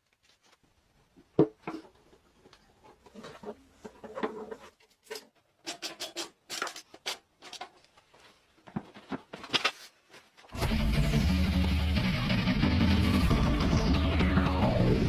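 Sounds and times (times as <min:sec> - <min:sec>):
scraping and rubbing on engine parts: 0:01.9 - 0:05.4.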